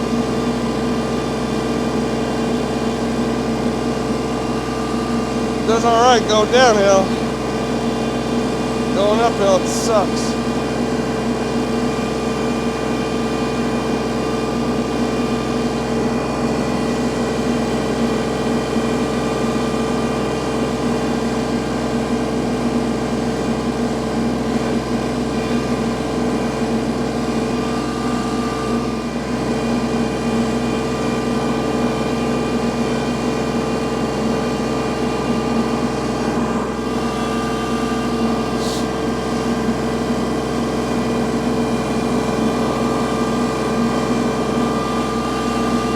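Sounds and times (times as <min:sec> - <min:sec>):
tractor diesel engine running: 0:04.0 - 0:07.6.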